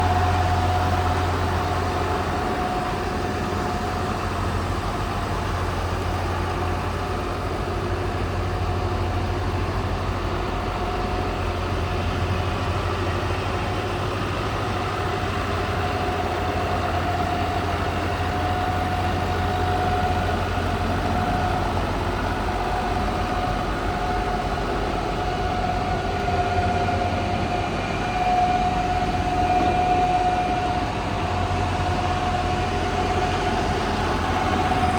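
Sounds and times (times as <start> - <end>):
steady whine: 0.0 - 34.9
tractor engine idling: 0.0 - 34.9.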